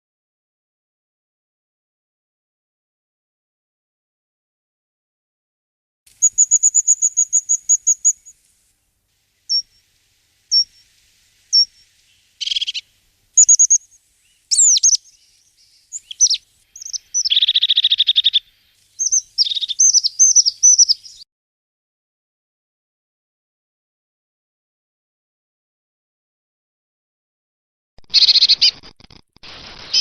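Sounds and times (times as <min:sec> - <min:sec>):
songbird singing: 0:06.1 - 0:21.2.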